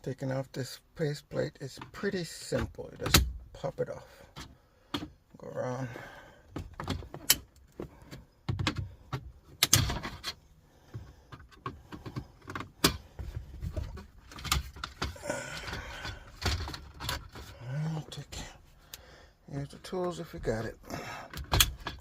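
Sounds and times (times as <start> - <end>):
scraping and handling noise: 6.6 - 18.8.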